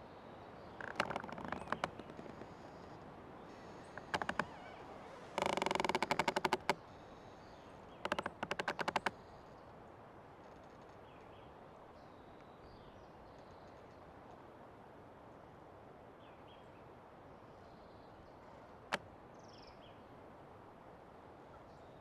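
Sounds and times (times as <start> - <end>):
tree creaking: 0.6 - 9.6, 10.4 - 11.0.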